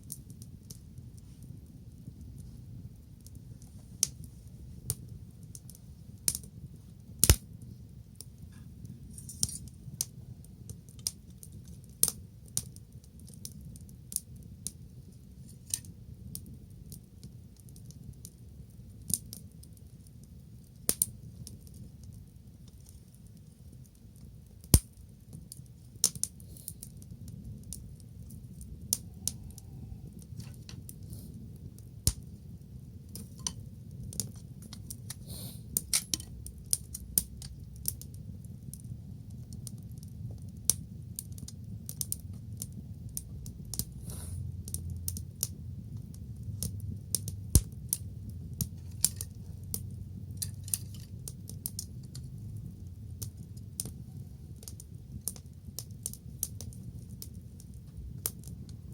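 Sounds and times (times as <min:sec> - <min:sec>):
wood fire crackling and popping: 0:00.0 - 0:58.9
low steady rumble: 0:23.4 - 0:58.9.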